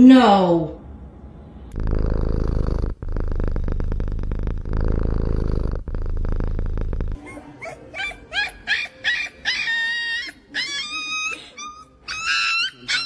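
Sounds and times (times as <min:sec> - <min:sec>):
cat purring: 0:01.7 - 0:07.2.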